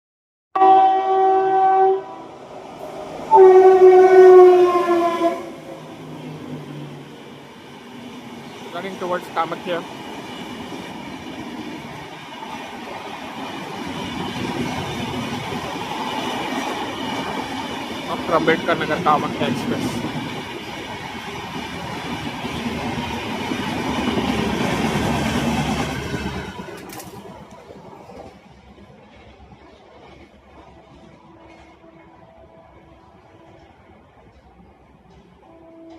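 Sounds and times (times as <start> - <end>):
train horn blasts: 0.6 - 2.4, 3.3 - 5.8, 35.4 - 35.9
train running rumble: 2.8 - 35.9.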